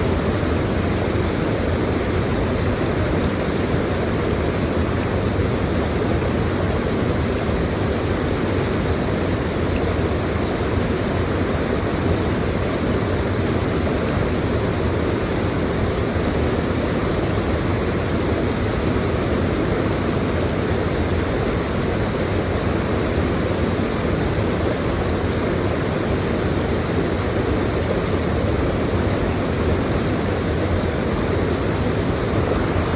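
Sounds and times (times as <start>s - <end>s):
waterfall rushing: 14.9s - 32.9s.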